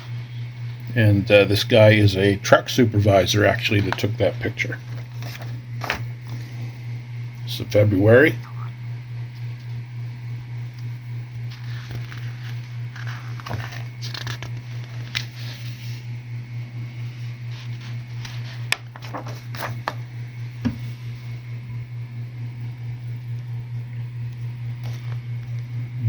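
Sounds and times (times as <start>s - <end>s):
steady low hum: 0.0s - 26.0s
paper pages rustling: 3.6s - 6.4s, 11.5s - 15.9s, 17.5s - 20.0s.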